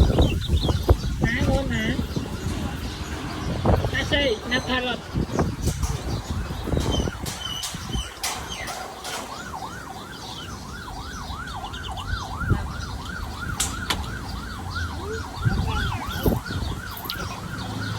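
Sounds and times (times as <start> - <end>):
siren wailing: 9.0 - 17.9.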